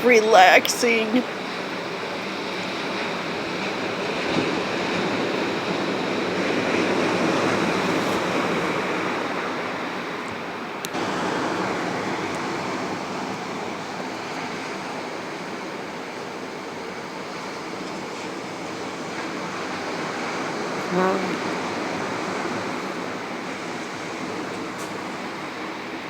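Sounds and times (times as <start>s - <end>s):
surf washing onto beach: 0.1s - 26.0s.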